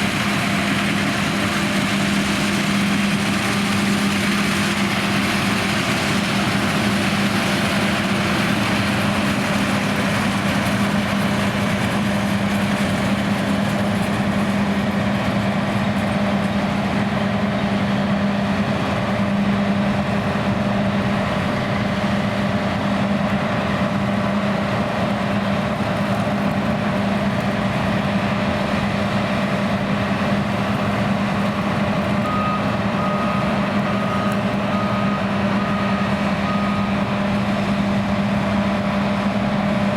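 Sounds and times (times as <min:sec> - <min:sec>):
combine harvester running: 0:00.0 - 0:39.9
reversing alarm beeping: 0:32.1 - 0:37.4.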